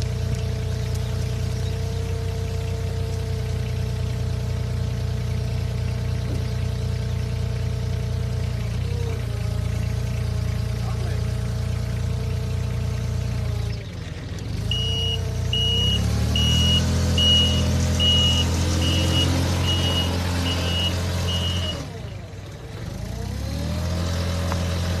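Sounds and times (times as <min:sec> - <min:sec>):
heavy machine diesel engine: 0:00.0 - 0:25.0
reversing alarm beeps: 0:14.7 - 0:21.9.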